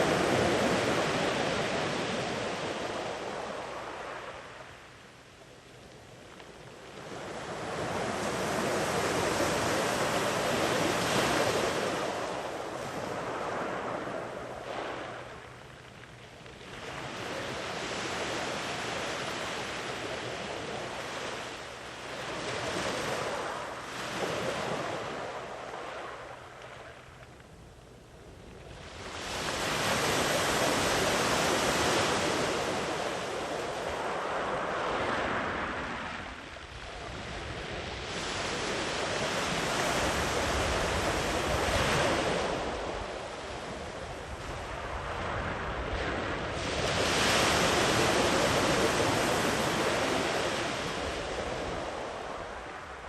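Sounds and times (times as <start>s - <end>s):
wind on microphone: 0.0s - 5.0s, 16.4s - 53.0s
sea waves breaking on a beach: 0.0s - 5.4s, 6.4s - 27.3s, 28.3s - 53.0s.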